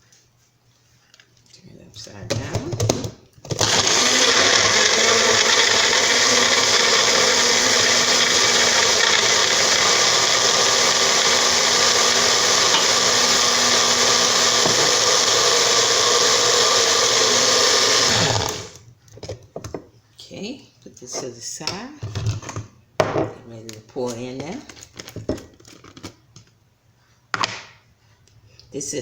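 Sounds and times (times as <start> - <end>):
blender motor running: 3.5 - 18.8.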